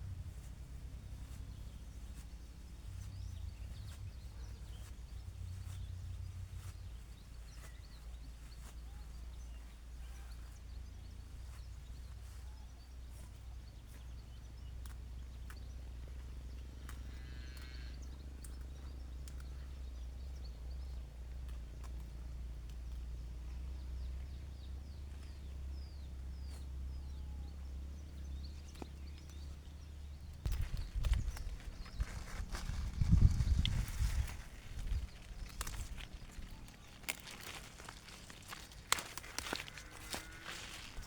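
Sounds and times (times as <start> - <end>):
wind rumble on microphone: 0.0 - 8.0, 30.4 - 38.8
light clicks and rustles: 10.8 - 24.4, 27.6 - 41.0.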